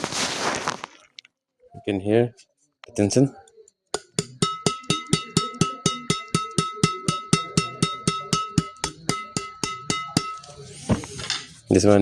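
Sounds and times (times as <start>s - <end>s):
racket strings pinging when tapped: 4.0s - 10.6s.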